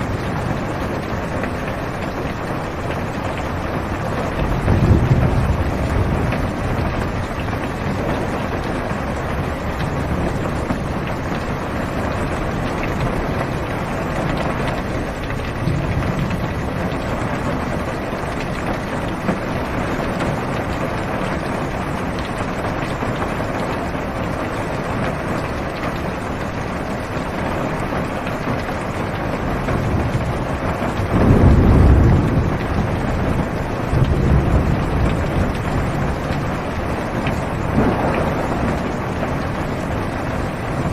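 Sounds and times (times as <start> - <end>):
heavy rain on car roof: 0.0 - 40.9
low rumble of thunder: 0.0 - 40.9.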